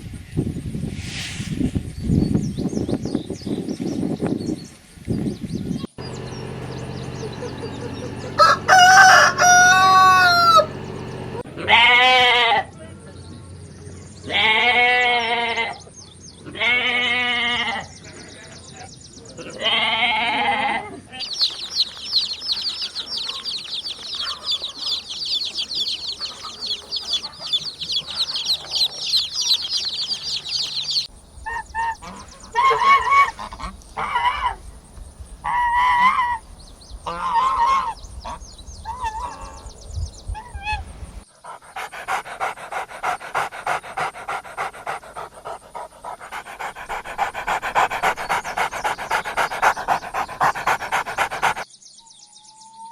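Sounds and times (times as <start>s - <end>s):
long pitched animal calls: 6.0s - 11.4s, 21.2s - 31.1s
rhythmic panting: 6.0s - 11.4s, 21.2s - 31.1s, 41.5s - 51.7s
short loud pitched calls: 6.0s - 11.4s, 21.2s - 31.1s
rapid high chirping: 21.2s - 31.1s.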